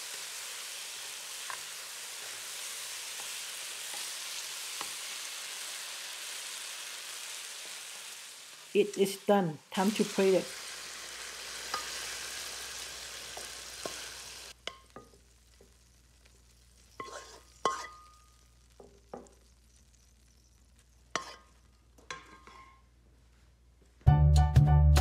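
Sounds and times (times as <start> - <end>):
beef sizzling in a wok: 0.0 - 22.7
spatula scraping ceramic plate: 17.0 - 18.0, 21.2 - 21.5
background music with a beat: 24.0 - 25.0.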